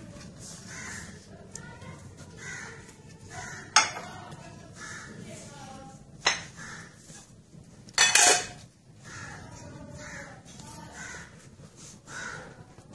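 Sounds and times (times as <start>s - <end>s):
harsh cawing bird calls: 0.6s - 1.3s, 2.3s - 4.1s, 4.7s - 5.3s, 6.3s - 7.2s, 9.0s - 12.7s.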